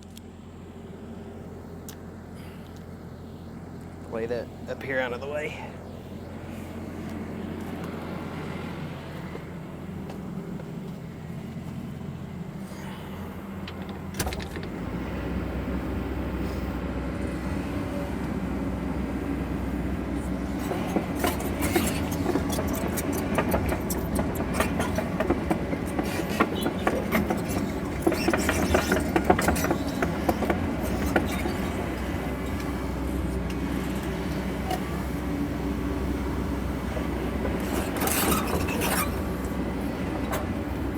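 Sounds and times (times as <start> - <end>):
excavator diesel engine: 0.0 - 40.9
clunk: 13.6 - 14.8, 20.6 - 32.8.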